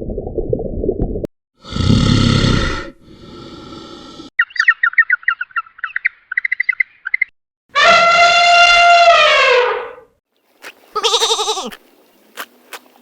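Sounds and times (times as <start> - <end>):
bird chirping: 4.4 - 7.3
long loud animal call: 11.0 - 11.8
pitched animal call: 11.0 - 11.8.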